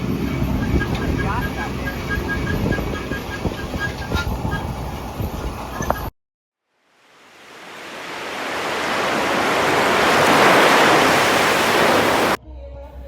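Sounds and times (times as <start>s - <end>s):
ocean surf rushing: 6.9s - 12.4s.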